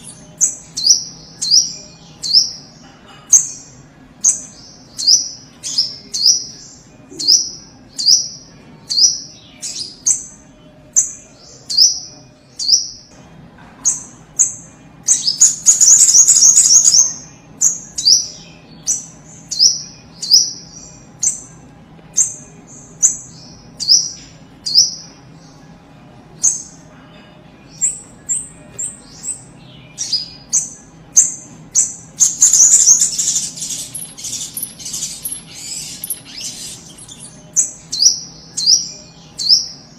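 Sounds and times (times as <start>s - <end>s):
bird calling with sharp chips: 32.2s - 37.4s.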